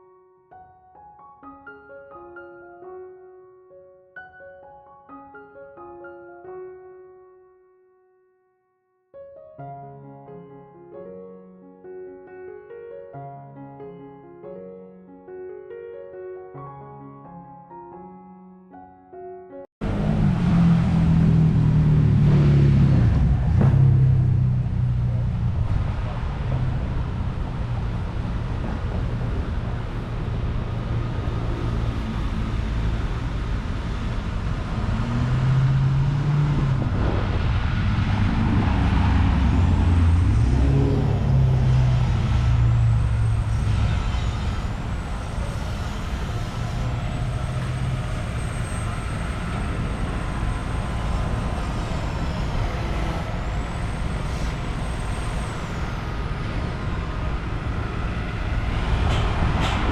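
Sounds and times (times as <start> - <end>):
heavy engine: 19.8 - 59.9
vehicles passing: 19.8 - 59.9.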